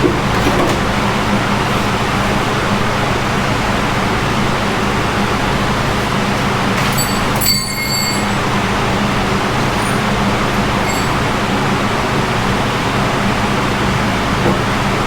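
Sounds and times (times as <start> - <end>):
brief high ring: 6.9 - 8.5, 10.8 - 11.2.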